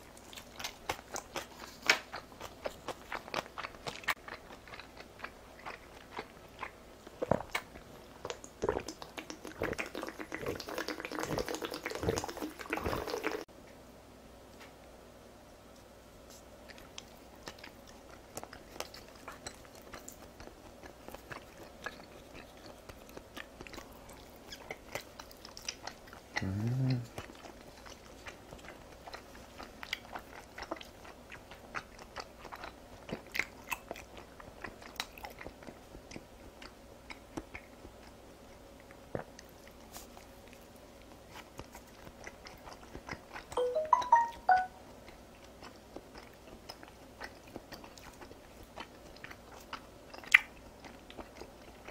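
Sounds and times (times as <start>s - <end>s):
close-miked chewing: 0.0s - 13.5s, 16.2s - 51.9s
brief high-pitched sound: 43.6s - 44.8s.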